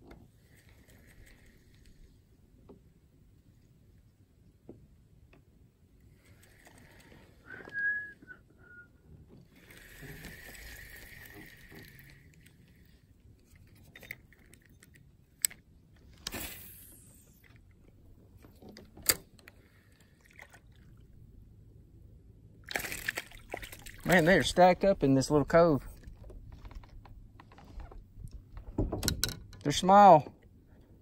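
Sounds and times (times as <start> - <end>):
fishing reel winding whir: 6.2 - 7.3, 9.5 - 13.0.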